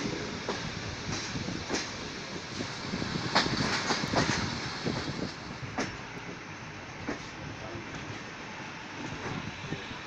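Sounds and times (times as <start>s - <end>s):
train wheel clacks: 0.0s - 6.4s, 7.0s - 8.3s
train running rumble: 0.0s - 10.0s.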